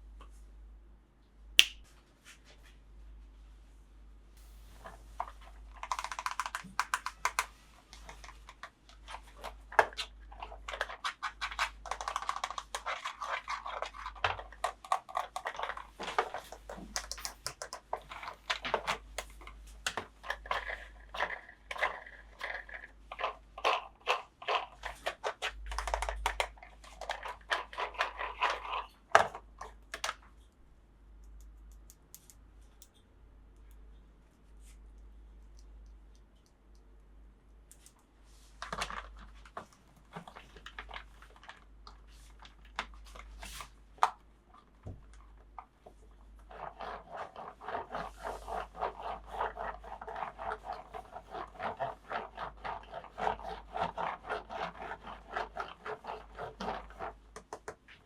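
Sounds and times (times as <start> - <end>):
plastic toy pieces clicking and rustling: 5.8 - 8.7, 10.6 - 30.2.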